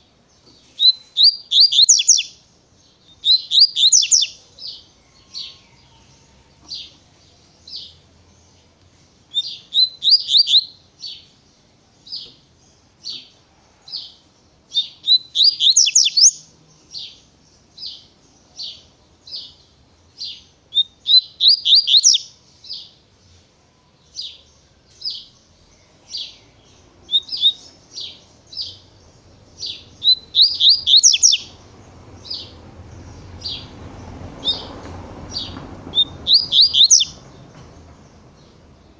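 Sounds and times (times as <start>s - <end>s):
bird singing high notes: 29.5s - 31.6s, 35.4s - 37.2s.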